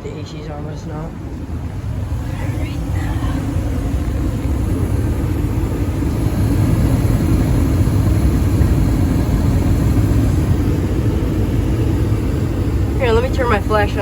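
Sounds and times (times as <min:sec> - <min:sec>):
gas furnace blower running: 0:00.0 - 0:14.0.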